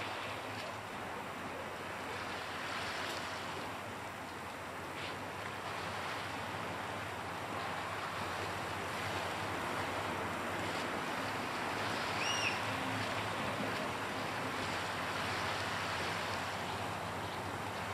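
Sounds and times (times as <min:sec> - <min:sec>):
waves on rocky shoreline: 0:00.0 - 0:17.9
high whistled bird call: 0:12.1 - 0:12.7.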